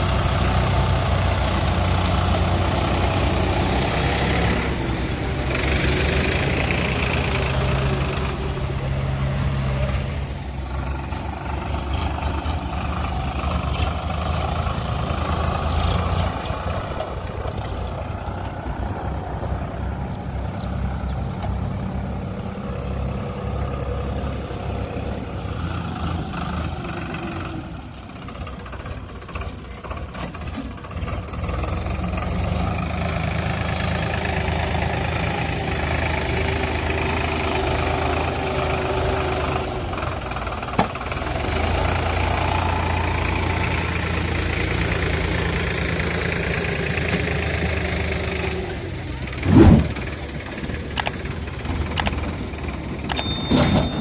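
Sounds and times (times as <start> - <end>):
heavy diesel engine running: 0.0 - 54.0
loud thump: 49.4 - 50.1.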